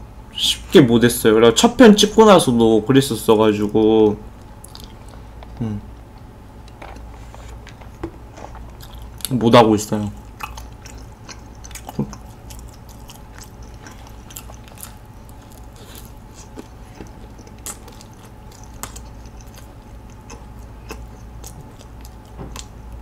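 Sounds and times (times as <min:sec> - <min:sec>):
person chewing: 0:04.5 - 0:09.4, 0:10.1 - 0:23.0.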